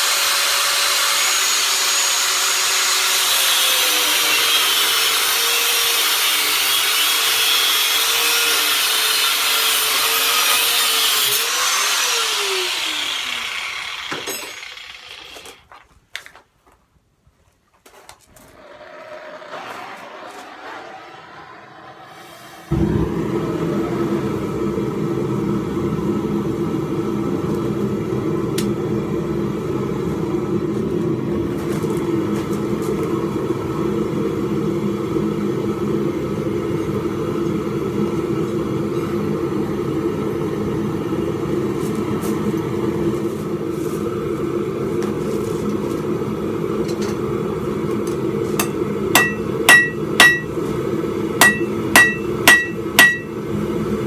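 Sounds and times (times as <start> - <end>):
hammer ringing on anvil: 48.6 - 50.6, 51.4 - 53.4.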